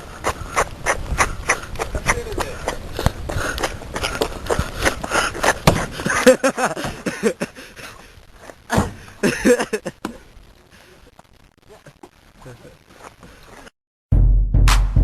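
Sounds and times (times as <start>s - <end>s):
knocks and thumps: 5.5s - 6.1s.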